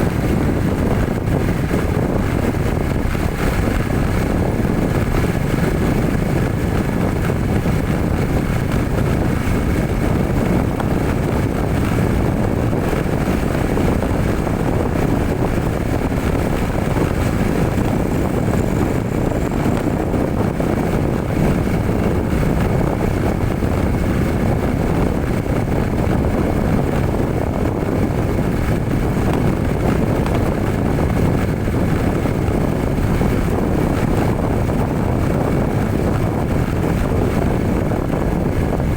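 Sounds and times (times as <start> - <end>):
road rumble: 0.0 - 38.9
truck engine running: 0.0 - 38.9.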